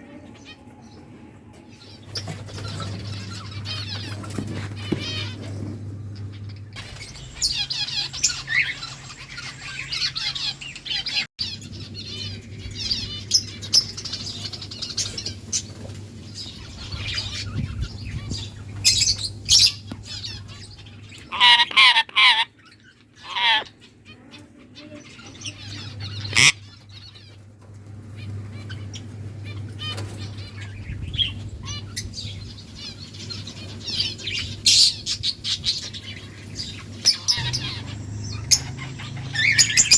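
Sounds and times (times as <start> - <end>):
low hum: 0.0 - 21.3, 25.4 - 39.9
parrots chirping and chattering: 1.7 - 39.9
parrot squawks: 21.3 - 23.7, 26.2 - 26.7.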